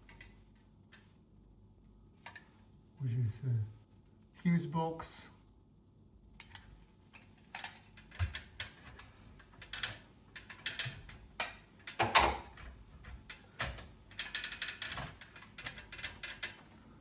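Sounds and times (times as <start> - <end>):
plastic parts clicking and knocking: 6.4 - 16.7.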